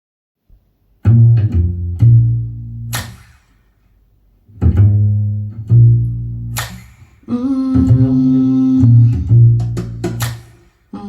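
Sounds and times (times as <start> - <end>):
plucked bass guitar notes: 1.0 - 3.2, 4.5 - 6.9, 7.5 - 10.4.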